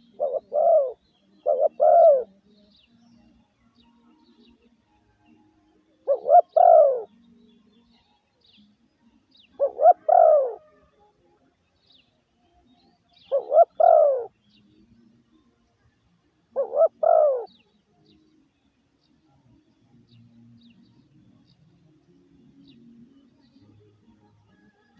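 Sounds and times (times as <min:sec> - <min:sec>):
dove cooing: 0:00.0 - 0:02.4, 0:05.8 - 0:07.2, 0:09.6 - 0:11.0, 0:13.1 - 0:14.4, 0:16.4 - 0:17.6.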